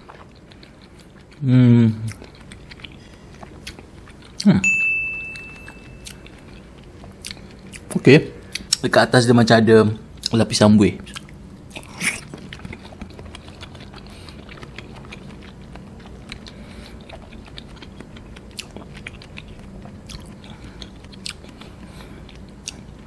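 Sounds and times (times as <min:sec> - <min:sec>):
mouth-close chewing with clicks: 0:00.0 - 0:01.4, 0:02.0 - 0:04.5, 0:06.0 - 0:08.9, 0:11.0 - 0:23.0.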